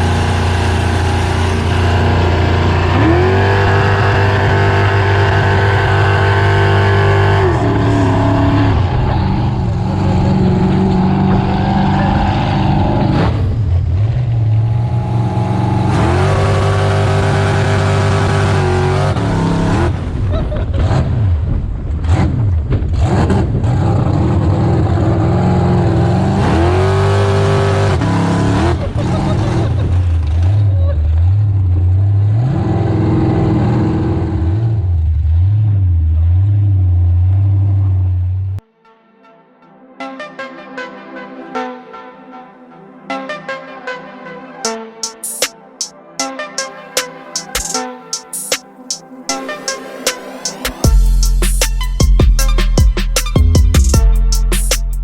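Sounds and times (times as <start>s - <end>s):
engine revving: 0.0s - 38.6s.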